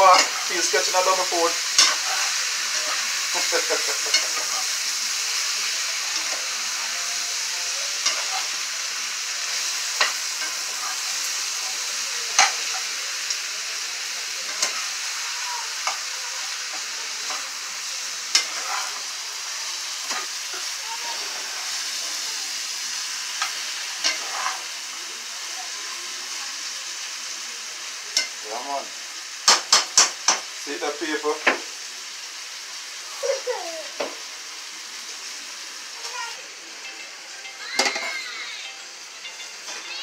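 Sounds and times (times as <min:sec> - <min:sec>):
spoon scraping a pan: 0:00.0 - 0:04.8, 0:07.4 - 0:11.4, 0:12.3 - 0:12.9, 0:14.4 - 0:15.2, 0:18.3 - 0:22.0, 0:22.9 - 0:24.7, 0:37.8 - 0:38.2
food sizzling in a frying pan: 0:00.0 - 0:40.0.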